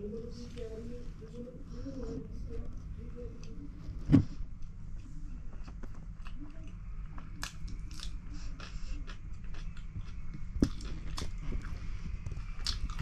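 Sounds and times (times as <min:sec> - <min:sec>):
crunchy chewing of cucumber: 0:07.0 - 0:13.0.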